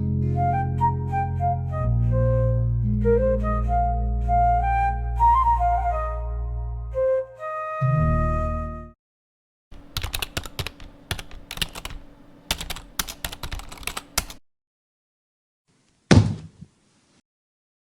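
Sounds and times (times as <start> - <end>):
rapid irregular clicks: 9.8 - 14.4.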